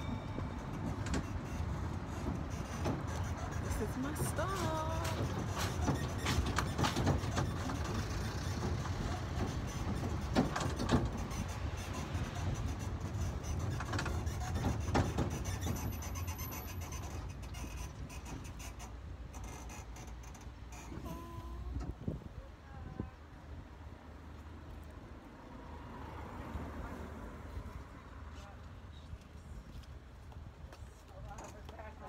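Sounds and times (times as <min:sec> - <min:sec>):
sharp knocks and rattles: 0:00.0 - 0:20.6
train carriage rumbling: 0:00.0 - 0:24.0.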